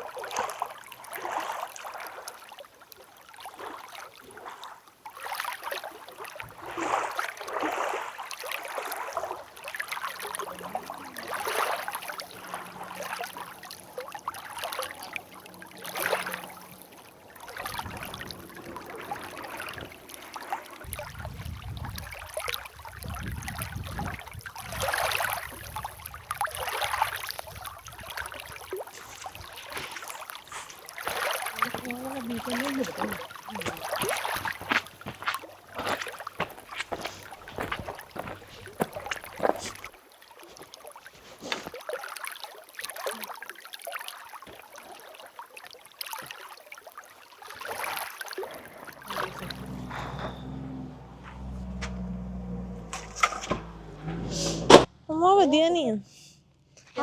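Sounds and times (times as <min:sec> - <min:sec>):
water washing and splashing: 0:00.0 - 0:54.9
wind rumble on microphone: 0:17.7 - 0:18.9, 0:20.8 - 0:30.0.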